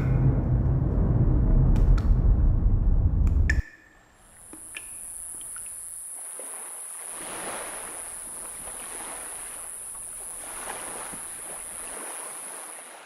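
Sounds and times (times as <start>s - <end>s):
steady high-pitched hiss: 3.8s - 13.0s
water lapping around a kayak: 4.6s - 13.0s.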